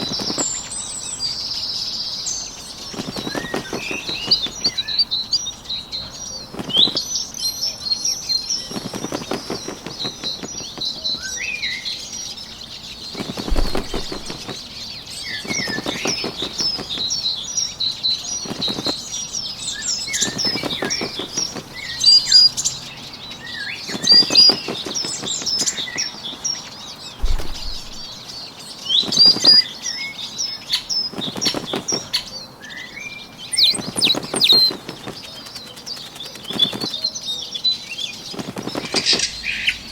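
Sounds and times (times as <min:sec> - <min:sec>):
fluttering wingbeats: 0:00.0 - 0:00.7, 0:02.6 - 0:05.4, 0:06.4 - 0:07.3, 0:08.1 - 0:11.3, 0:12.8 - 0:22.7, 0:23.7 - 0:28.4, 0:29.0 - 0:29.7, 0:30.7 - 0:32.3, 0:33.4 - 0:37.3, 0:38.0 - 0:39.9
small birds chirping: 0:00.0 - 0:39.9.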